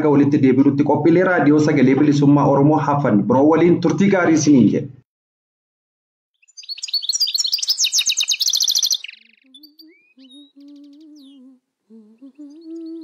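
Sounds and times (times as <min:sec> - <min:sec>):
bird chirps and trills: 0:06.4 - 0:13.0
person humming a melody: 0:09.3 - 0:13.0.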